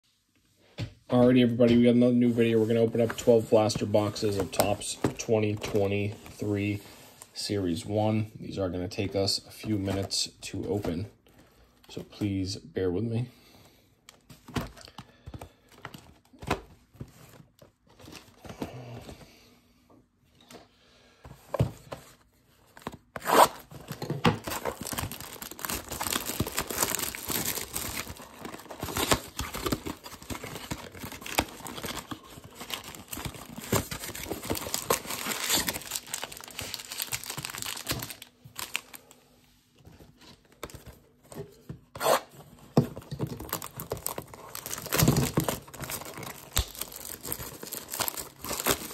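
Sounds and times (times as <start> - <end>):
tearing and crinkling wrapping: 23.2 - 39.2, 43.0 - 48.9.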